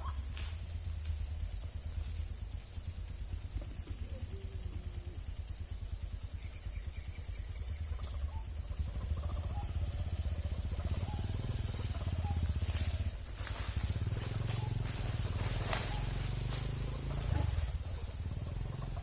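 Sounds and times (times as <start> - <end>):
small engine pulsing rumble: 0.0 - 19.0
steady high-pitched hiss: 0.0 - 19.0.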